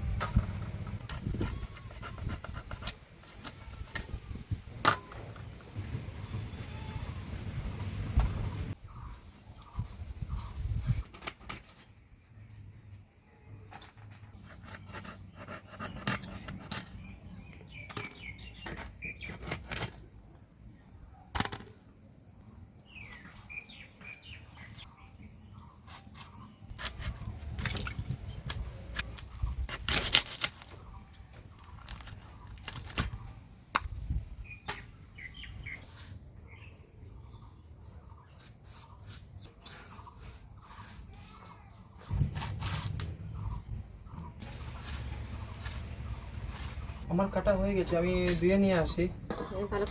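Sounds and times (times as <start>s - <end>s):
small birds chirping: 5.8s - 11.1s, 12.2s - 19.7s, 22.4s - 29.8s, 30.6s - 49.1s.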